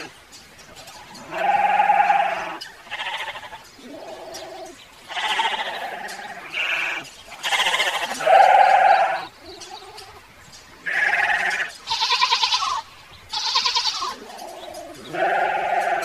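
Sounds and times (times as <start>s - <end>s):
sheep bleating: 1.2s - 3.6s, 5.1s - 9.3s, 10.8s - 14.5s, 15.1s - 16.0s.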